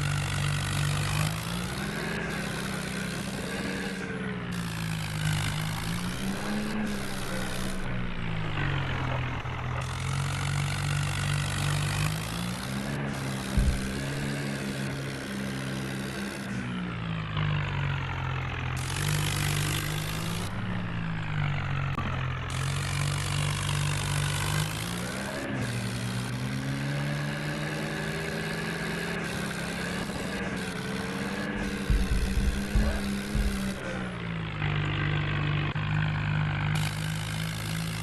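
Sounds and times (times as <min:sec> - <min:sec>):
tractor diesel engine running: 0:00.0 - 0:38.0
low thumps: 0:13.6 - 0:14.3, 0:31.6 - 0:33.8.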